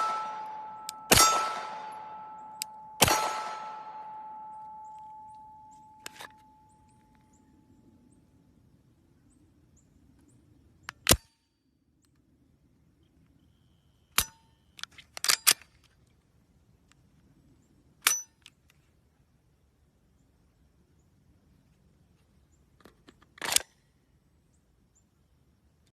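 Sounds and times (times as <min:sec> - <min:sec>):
pistol mechanism clicks: 0:00.4 - 0:01.6, 0:02.4 - 0:03.8, 0:04.6 - 0:06.5, 0:10.8 - 0:11.4, 0:14.2 - 0:16.0, 0:18.0 - 0:18.8, 0:22.8 - 0:23.9.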